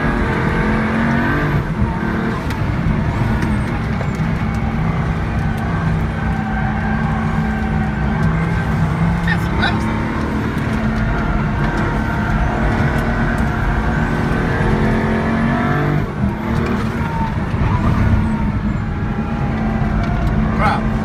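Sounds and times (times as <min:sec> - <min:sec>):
car engine revving from inside cabin: 0:00.0 - 0:03.8, 0:05.6 - 0:17.0
road noise: 0:00.0 - 0:21.0.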